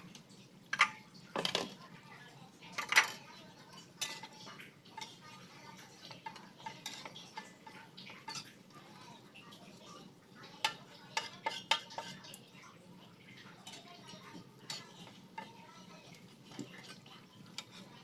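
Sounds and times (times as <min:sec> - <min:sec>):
oil sizzling: 0:00.0 - 0:18.0
metal tongs clinking on a wok: 0:02.7 - 0:08.9, 0:10.5 - 0:12.4, 0:13.5 - 0:18.0.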